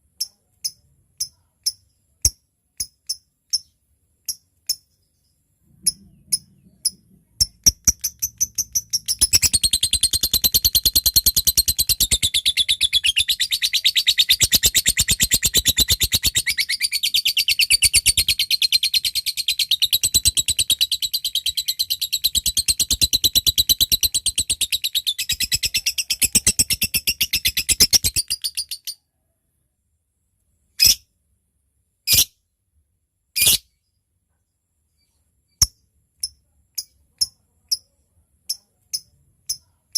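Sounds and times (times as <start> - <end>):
bird fast chattering trill: 5.9 - 28.8.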